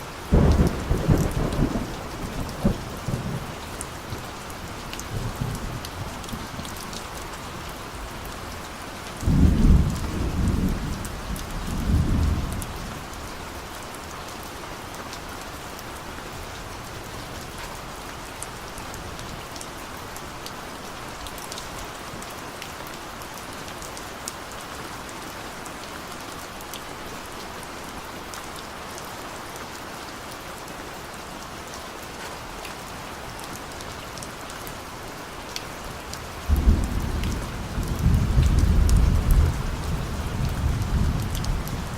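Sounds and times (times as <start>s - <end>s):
steady rain falling: 0.0s - 41.9s
distant thunder rumbling: 0.3s - 4.2s, 36.5s - 41.9s.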